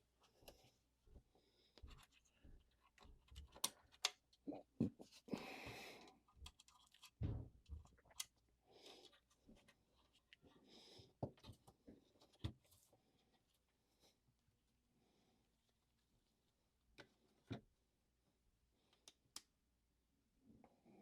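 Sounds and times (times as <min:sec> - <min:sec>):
small tools clicking and tapping: 0:01.8 - 0:04.4.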